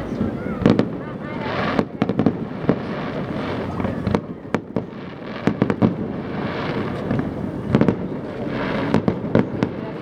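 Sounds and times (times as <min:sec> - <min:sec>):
continuous rumbling: 0:00.0 - 0:04.9
fireworks bangs: 0:00.0 - 0:10.0.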